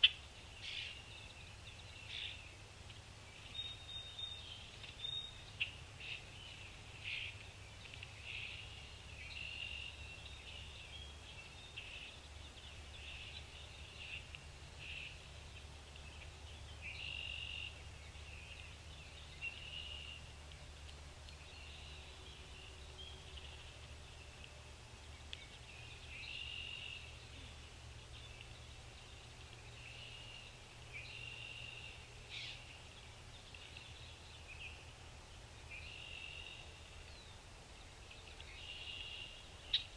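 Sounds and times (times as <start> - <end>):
faint steady low hum: 0.0 - 39.9
small birds chirping: 0.0 - 39.9.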